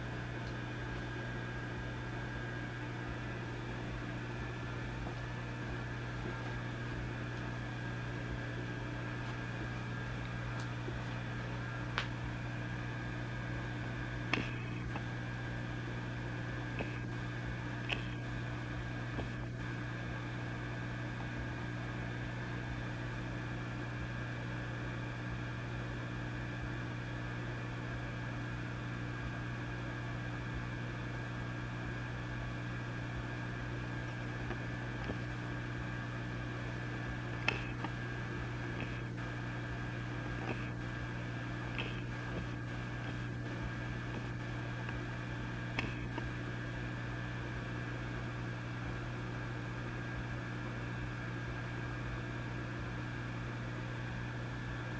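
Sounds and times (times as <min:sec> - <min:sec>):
amplifier mains hum: 0:00.0 - 0:54.9
faint crackles: 0:13.5 - 0:20.0, 0:33.2 - 0:46.5
amplifier hiss: 0:33.6 - 0:46.5.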